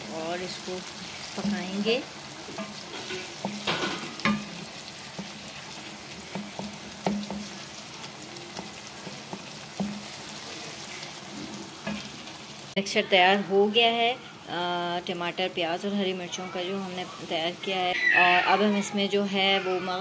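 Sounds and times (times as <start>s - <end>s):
masala sizzling in oil: 0.0s - 20.0s
spatula stirring and scraping: 0.4s - 12.3s
spatula knocking against pan: 2.5s - 5.4s, 6.1s - 7.7s, 8.6s - 10.2s.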